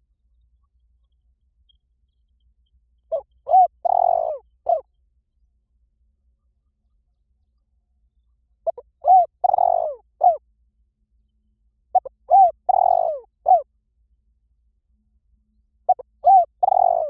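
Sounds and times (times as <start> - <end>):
dove cooing: 3.1 - 4.9, 8.6 - 10.4, 12.0 - 13.7, 15.9 - 17.0.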